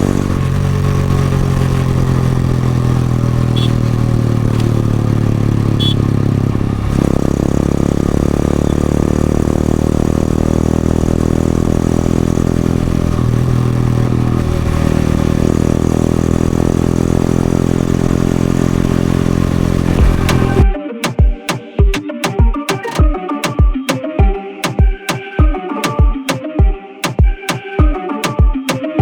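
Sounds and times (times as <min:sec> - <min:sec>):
motorcycle engine running: 0:00.0 - 0:20.7.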